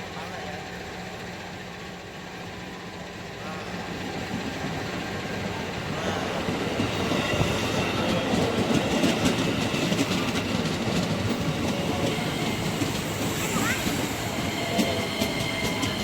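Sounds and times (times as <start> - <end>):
electric train wheels rolling on rails: 0.0 - 16.0
wheels clacking over rail joints: 4.1 - 16.0.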